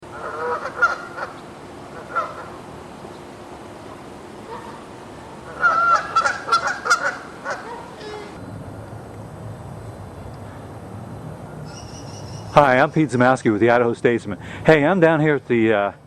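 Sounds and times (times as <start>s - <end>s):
geese honking: 0.0s - 3.2s, 3.9s - 8.4s.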